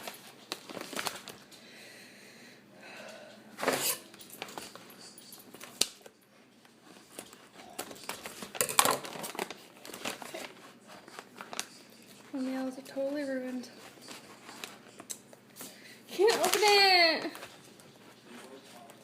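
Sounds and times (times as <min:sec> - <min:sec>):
snack pouch crinkling: 0:16.2 - 0:17.5.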